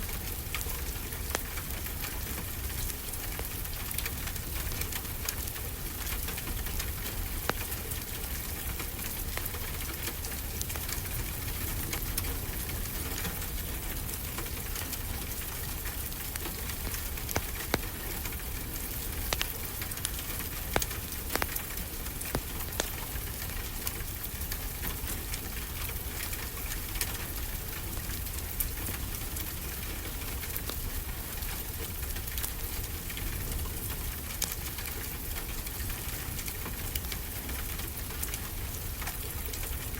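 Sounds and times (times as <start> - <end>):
rain hiss: 0.0 - 39.9
wood fire popping and crackling: 0.0 - 39.9.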